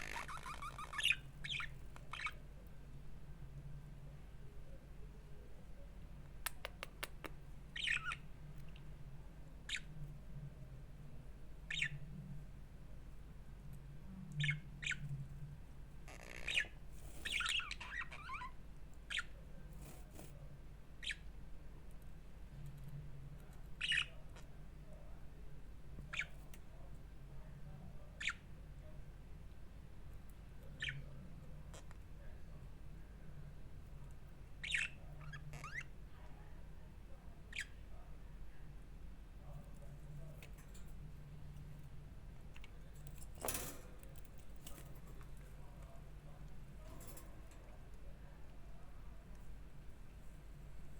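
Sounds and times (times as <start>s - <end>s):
budgerigars chirping: 0.0s - 2.4s, 7.8s - 8.2s, 11.7s - 12.0s, 34.6s - 35.9s.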